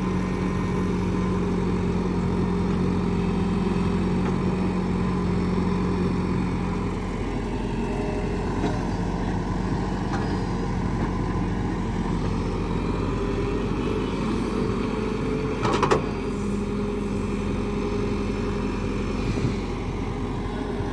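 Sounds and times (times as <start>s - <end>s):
excavator diesel engine running: 0.0s - 20.9s.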